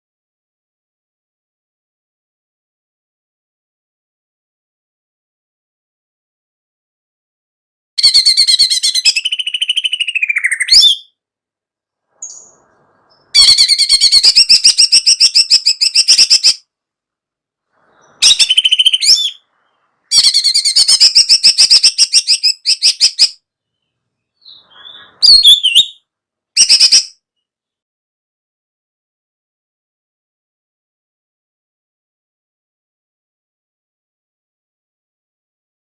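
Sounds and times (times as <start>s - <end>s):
songbird chattering trills: 24.4s - 25.9s.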